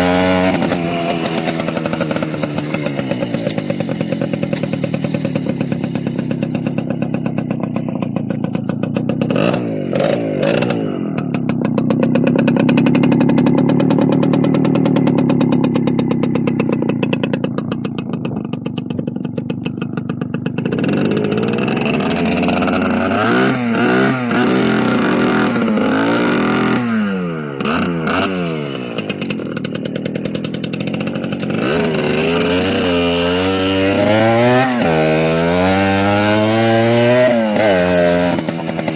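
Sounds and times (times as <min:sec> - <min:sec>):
small motorcycle engine revving: 0:00.0 - 0:38.9.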